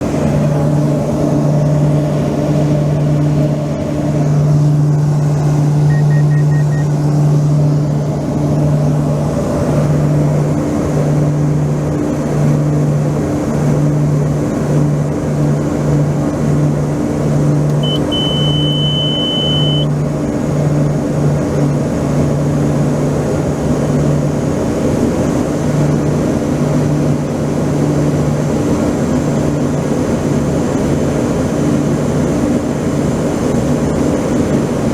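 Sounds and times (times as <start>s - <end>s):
engine droning: 0.0s - 34.9s
high steady tone: 5.8s - 7.0s, 17.7s - 19.9s.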